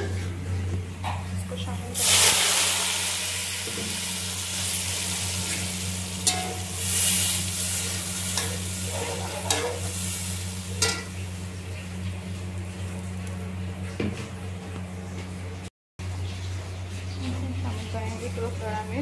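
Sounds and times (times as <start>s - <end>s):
food sizzling in hot oil: 1.9s - 13.3s
metal spatula clinking on pot: 6.2s - 6.7s, 8.4s - 9.9s, 10.8s - 11.1s.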